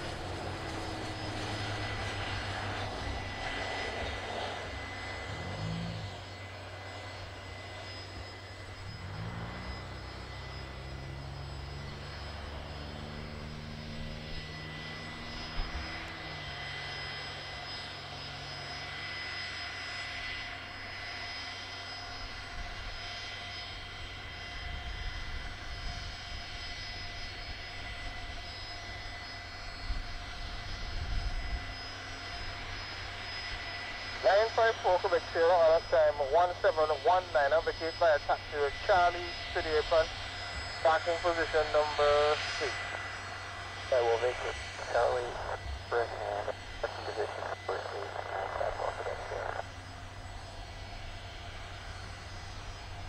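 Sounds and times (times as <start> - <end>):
jet engine whine: 0.0 - 53.0
low jet drone: 0.0 - 53.0.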